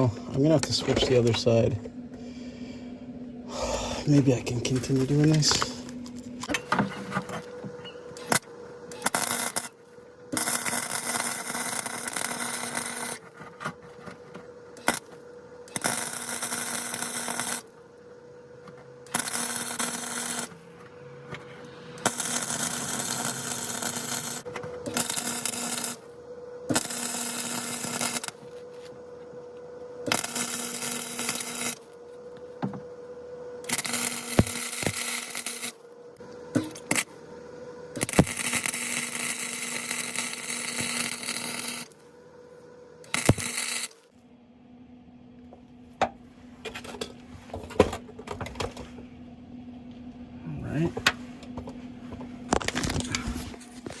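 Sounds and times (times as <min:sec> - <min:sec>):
faint steady hum: 0:00.0 - 0:54.0
welder running on metal: 0:04.0 - 0:18.0, 0:18.6 - 0:29.0, 0:30.0 - 0:32.1, 0:33.6 - 0:35.8, 0:36.5 - 0:37.2, 0:37.9 - 0:42.0, 0:43.0 - 0:44.1.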